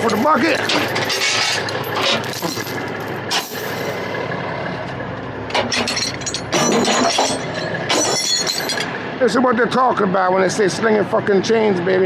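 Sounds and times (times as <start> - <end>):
chains clinking and clattering: 0.0 - 4.1, 5.7 - 8.9
diesel engine idling: 0.0 - 12.0.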